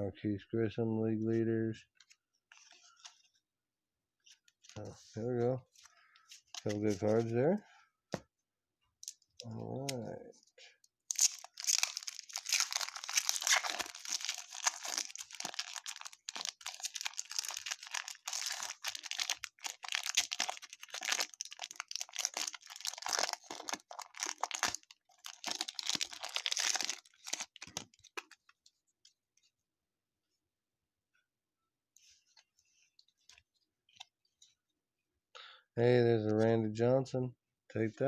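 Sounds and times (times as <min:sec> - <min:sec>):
card pack wrappers crinkling and tearing: 0:11.1 - 0:28.6.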